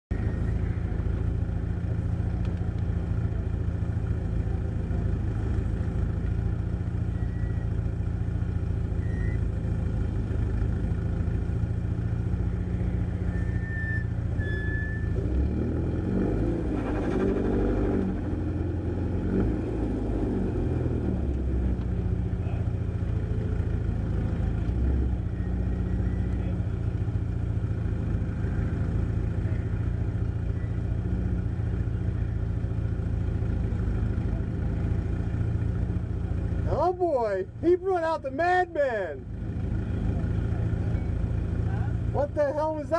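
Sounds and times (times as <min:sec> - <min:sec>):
car engine idling: 0:00.1 - 0:15.9, 0:16.6 - 0:42.9
car accelerating away: 0:14.7 - 0:32.2.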